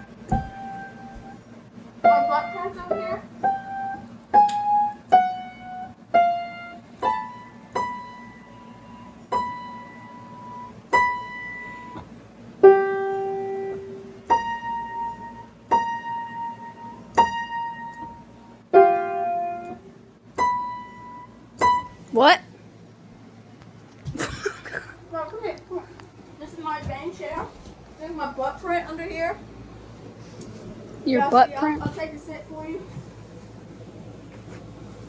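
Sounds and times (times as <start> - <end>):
slow piano melody: 0.0 - 22.1.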